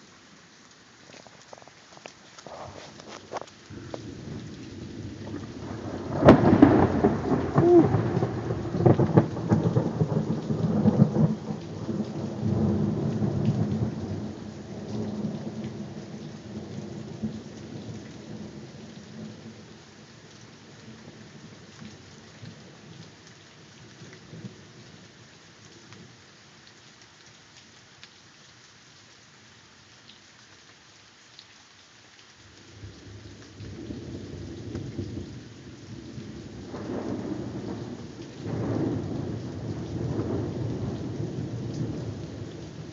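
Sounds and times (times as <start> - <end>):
rain falling: 0.0 - 42.9
thunder rumbling: 2.4 - 17.4, 36.0 - 42.9.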